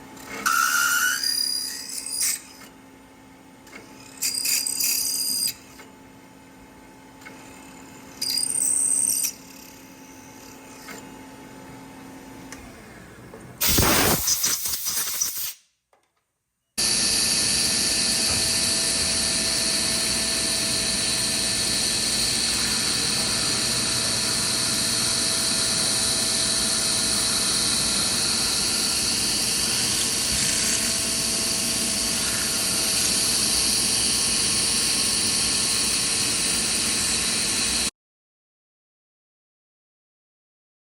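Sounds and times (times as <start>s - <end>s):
high machine whine: 13.6s - 15.4s, 16.8s - 37.9s
milling machine running: 16.8s - 37.9s.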